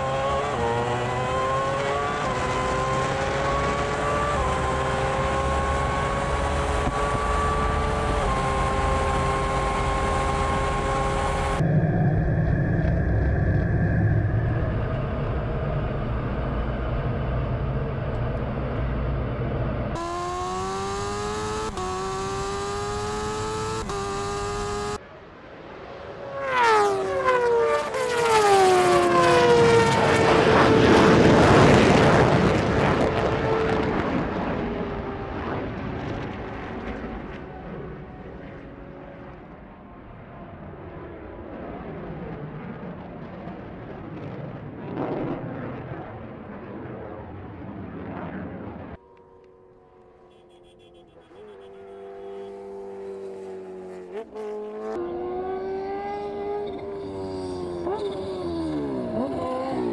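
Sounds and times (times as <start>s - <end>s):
drag racing engines at full throttle: 0.0s - 41.4s, 42.0s - 59.9s
vehicle passing at speed: 18.5s - 38.2s, 49.2s - 59.9s.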